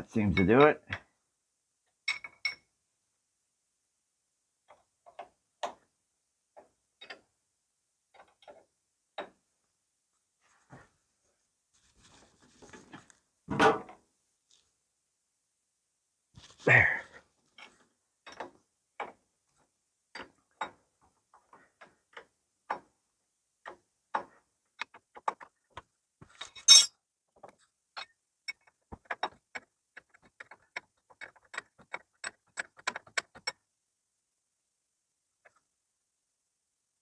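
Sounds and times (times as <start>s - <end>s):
metallic clicks of hand wrenches: 26.4s - 26.9s.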